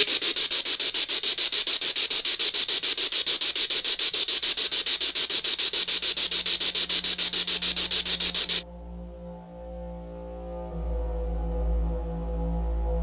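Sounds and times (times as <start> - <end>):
pulsing radio static: 0.0 - 8.6
low sustained music tones: 8.6 - 13.0.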